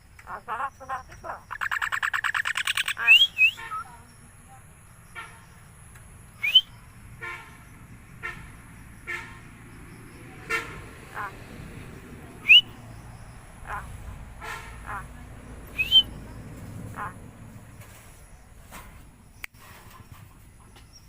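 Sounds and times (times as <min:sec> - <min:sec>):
myna rising whistles: 0:03.1 - 0:03.9, 0:06.4 - 0:06.8, 0:12.4 - 0:12.8, 0:15.8 - 0:16.2.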